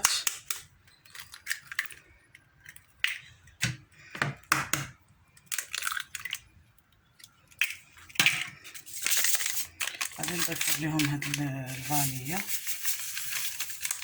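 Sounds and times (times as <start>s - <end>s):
eggshells cracking: 0.0s - 3.7s, 5.4s - 14.0s.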